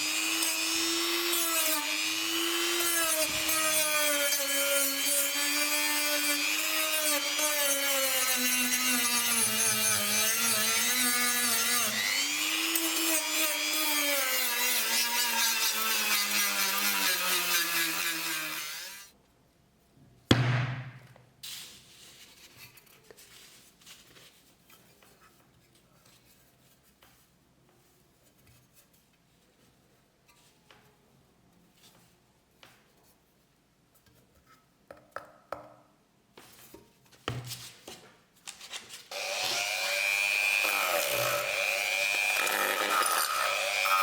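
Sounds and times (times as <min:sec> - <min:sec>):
small power tool running: 0:00.0 - 0:19.1, 0:39.1 - 0:44.0
sharp knock: 0:20.3 - 0:21.1.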